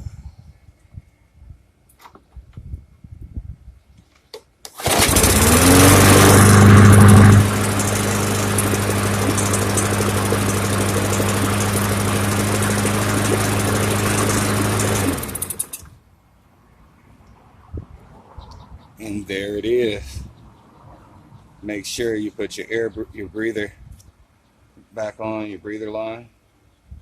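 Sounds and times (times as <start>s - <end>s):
lawn mower engine starting and running: 4.7s - 16.0s.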